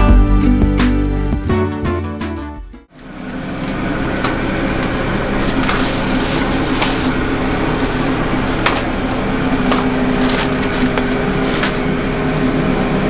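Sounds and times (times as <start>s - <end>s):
kitchen machinery humming: 2.9s - 13.0s
clicks and knocks of work: 3.3s - 12.8s.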